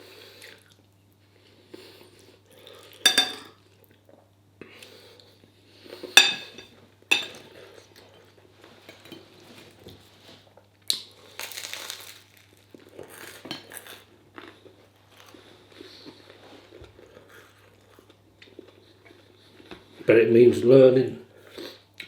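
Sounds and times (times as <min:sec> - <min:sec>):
cutlery scraping on a plate: 0:06.1 - 0:07.5
chewing: 0:10.9 - 0:19.9.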